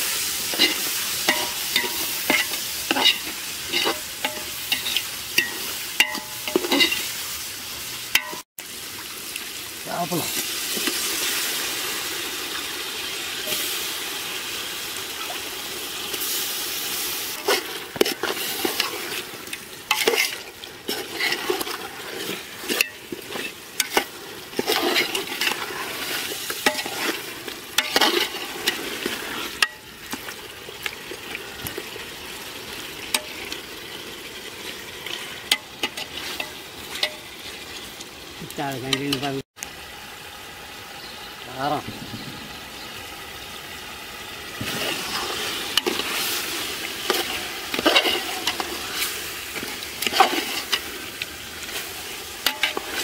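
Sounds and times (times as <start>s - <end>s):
fish sizzling in a pot: 0.0s - 53.0s
metal ladle clinking and scraping: 0.4s - 7.1s, 8.1s - 8.4s, 17.3s - 29.8s, 35.0s - 37.4s, 44.6s - 51.0s, 51.6s - 53.0s.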